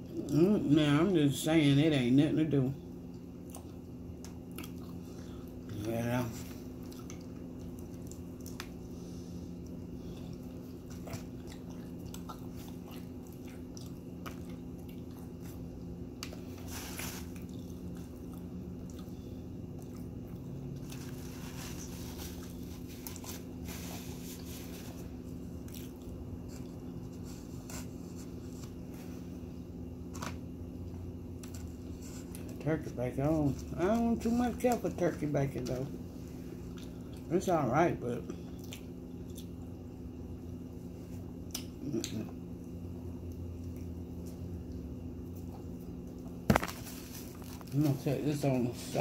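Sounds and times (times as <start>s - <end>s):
steady low hum: 0.0s - 49.0s
wet chewing with mouth clicks: 3.1s - 28.8s, 38.4s - 39.8s, 41.2s - 46.4s.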